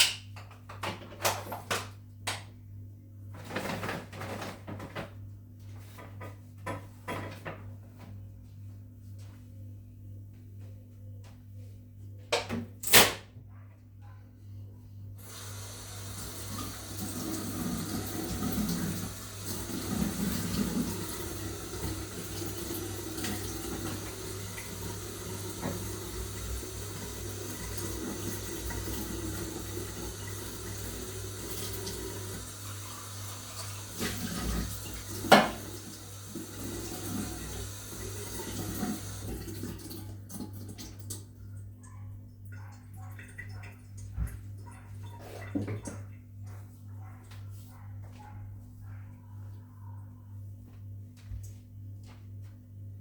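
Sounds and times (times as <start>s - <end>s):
tap water running into sink: 15.2s - 41.3s.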